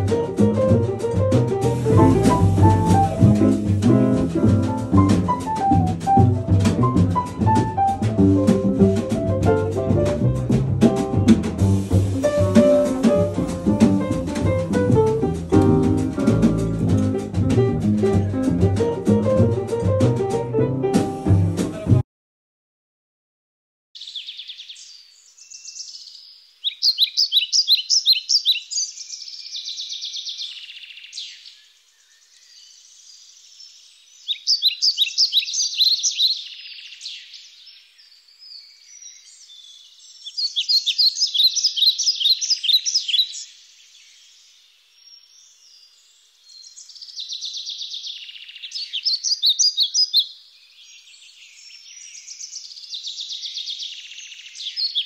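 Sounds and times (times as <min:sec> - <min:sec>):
songbird singing: 0:01.8 - 0:06.2, 0:24.0 - 0:55.0.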